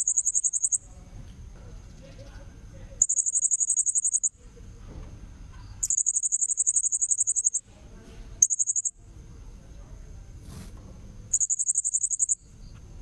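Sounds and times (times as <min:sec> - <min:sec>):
shrill parrot calls: 0:05.8 - 0:07.6.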